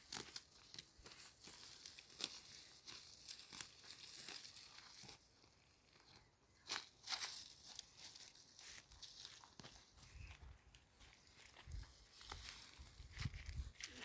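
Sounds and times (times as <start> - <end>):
plants being torn up by hand: 0.0 - 5.5.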